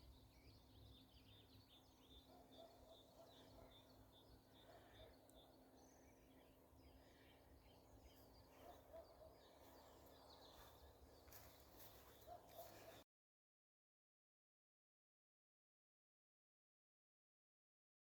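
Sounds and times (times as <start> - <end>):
distant birds chirping: 0.0 - 13.0.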